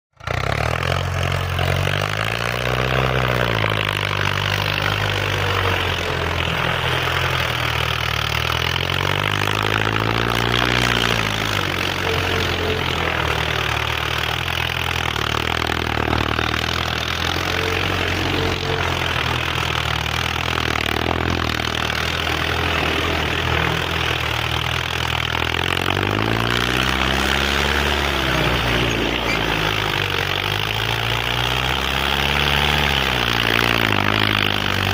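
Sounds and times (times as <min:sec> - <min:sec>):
tractor engine revving: 0:00.1 - 0:34.9.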